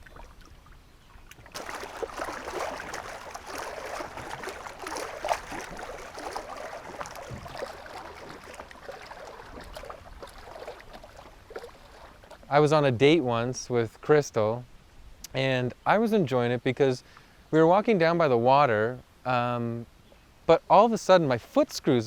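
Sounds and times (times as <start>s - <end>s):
water sloshing and splashing: 0.0s - 13.1s.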